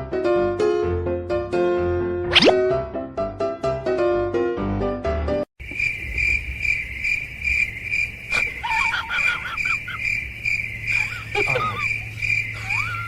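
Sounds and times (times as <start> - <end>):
short warbling squeaks: 2.3 - 2.6.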